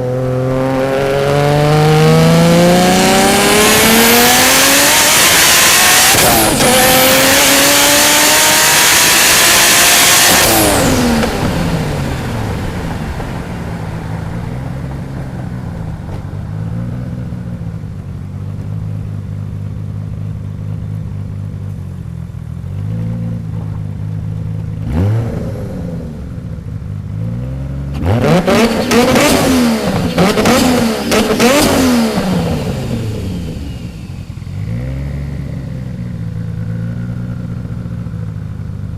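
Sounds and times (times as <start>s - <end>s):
turbocharged car engine revving: 0.0s - 13.4s, 22.7s - 38.7s.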